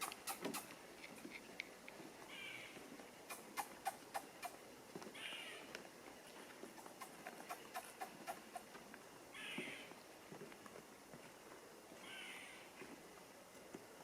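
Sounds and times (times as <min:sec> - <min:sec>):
bird hissing calls: 0:00.0 - 0:00.7, 0:03.3 - 0:04.6, 0:06.8 - 0:08.7.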